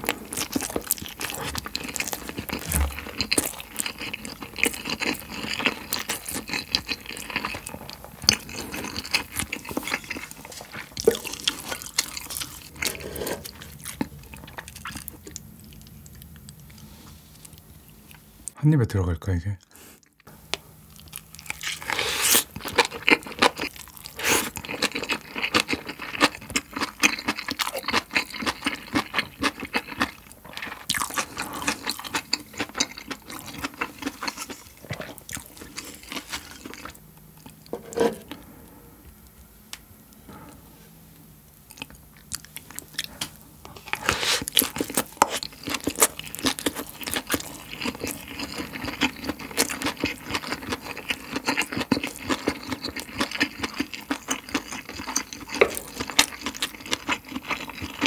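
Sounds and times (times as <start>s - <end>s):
close chewing with wet smacks: 41.7s - 58.0s.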